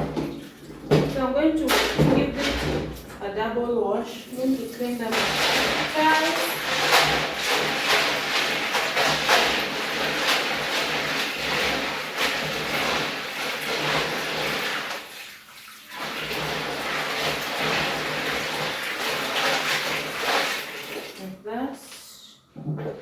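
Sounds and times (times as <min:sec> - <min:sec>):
water running and splashing: 0:04.3 - 0:21.2.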